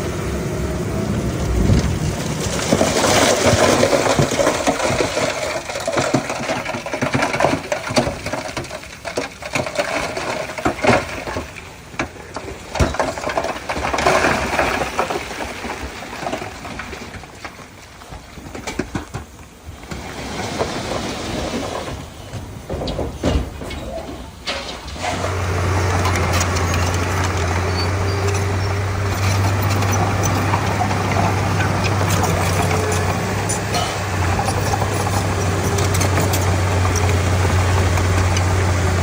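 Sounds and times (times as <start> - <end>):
diesel engine drone: 0.0 - 16.8, 19.6 - 39.0
machinery knocking and clattering: 25.9 - 39.0.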